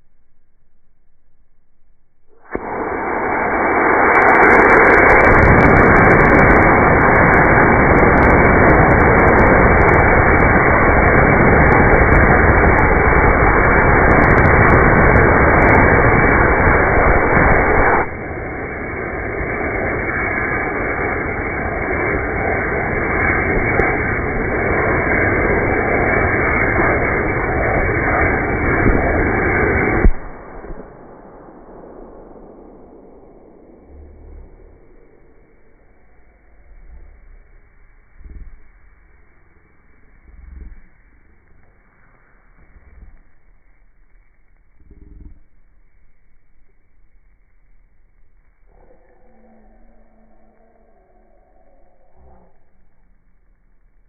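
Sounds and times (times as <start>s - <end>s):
model rocket motor firing: 2.5s - 44.0s.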